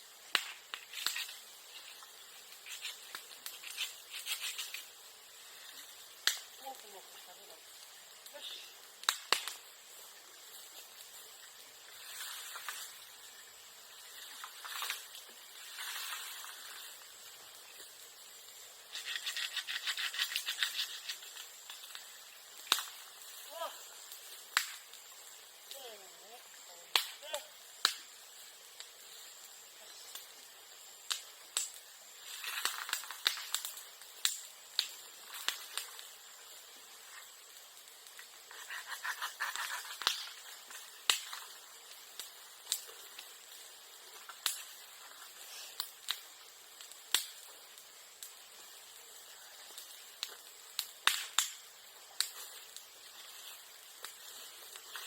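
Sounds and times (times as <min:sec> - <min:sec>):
bonfire crackling: 0:00.0 - 0:55.0
sharp pops in fire: 0:00.1 - 0:06.9, 0:07.7 - 0:25.9, 0:26.9 - 0:55.0
sharp fire pop: 0:00.2 - 0:04.9, 0:06.2 - 0:06.6, 0:09.0 - 0:09.6, 0:18.9 - 0:23.2, 0:24.1 - 0:25.0, 0:26.9 - 0:28.2, 0:31.0 - 0:36.1, 0:38.0 - 0:41.6, 0:45.8 - 0:47.5, 0:49.8 - 0:52.8.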